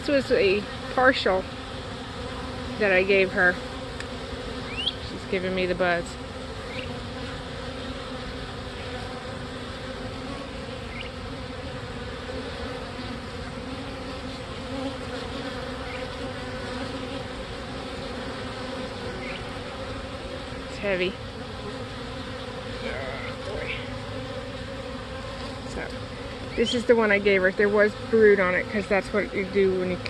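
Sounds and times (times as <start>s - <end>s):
bees buzzing: 0.0s - 30.0s.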